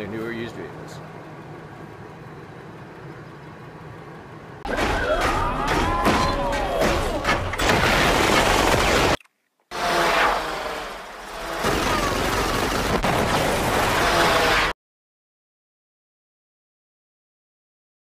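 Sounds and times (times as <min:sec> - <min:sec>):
explosions: 0:11.6 - 0:14.3.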